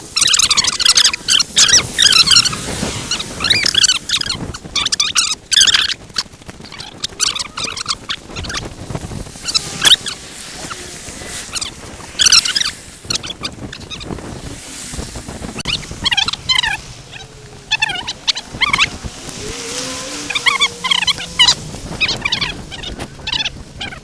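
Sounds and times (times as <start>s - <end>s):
footsteps crunching in snow: 6.9s - 24.0s.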